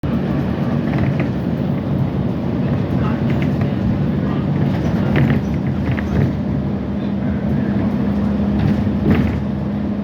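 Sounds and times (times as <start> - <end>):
metro train rumbling: 0.0 - 10.0.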